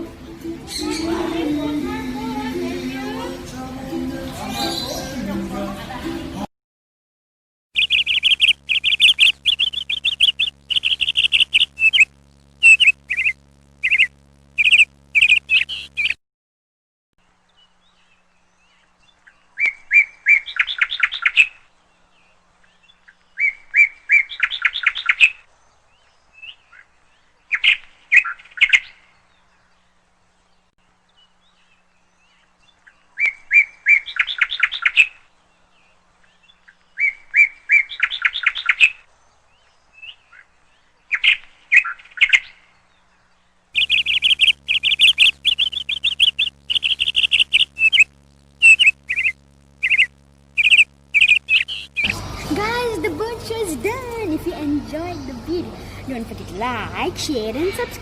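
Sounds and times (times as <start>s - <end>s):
birds chirping: 0.0s - 3.6s, 4.3s - 5.4s, 7.8s - 16.2s, 17.4s - 58.0s.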